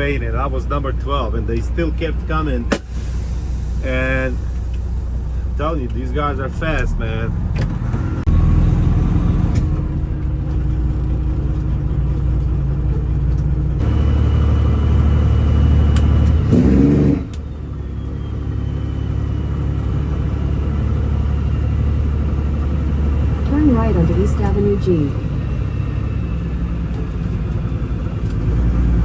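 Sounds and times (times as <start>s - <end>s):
diesel truck engine rumbling: 0.0s - 29.0s.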